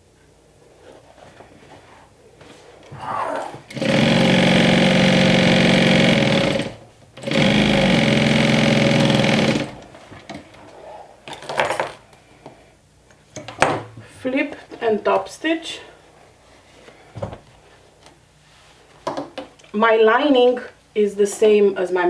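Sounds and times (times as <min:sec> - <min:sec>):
industrial sewing machine stitching: 0:03.2 - 0:09.9.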